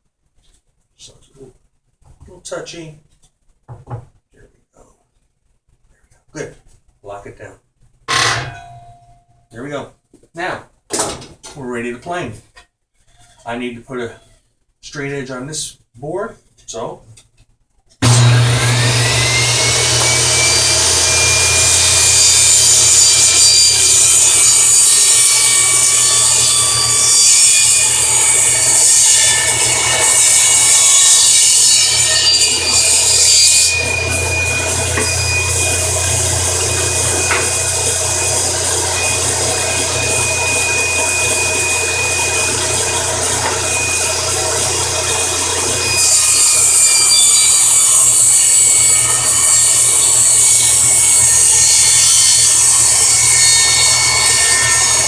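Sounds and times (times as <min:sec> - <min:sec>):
saw cutting wood board: 0:08.1 - 0:08.6, 0:18.0 - 0:55.0
table saw whining: 0:08.1 - 0:08.8, 0:18.0 - 0:55.0.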